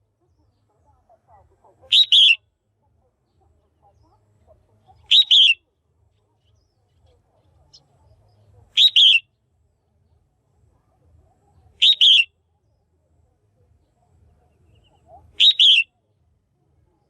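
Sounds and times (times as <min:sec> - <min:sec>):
bulbul double-noted calls: 0:00.2 - 0:02.5, 0:03.1 - 0:05.8, 0:06.6 - 0:09.3, 0:11.7 - 0:12.4, 0:14.6 - 0:16.0.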